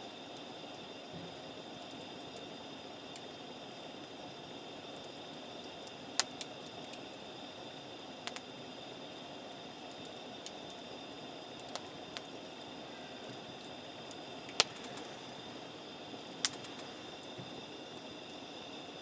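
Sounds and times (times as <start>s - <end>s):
campfire crackling: 0.0s - 19.0s
sharp pops of burning wood: 5.9s - 7.0s, 8.2s - 8.5s, 11.5s - 12.4s, 13.2s - 15.2s, 16.2s - 18.3s.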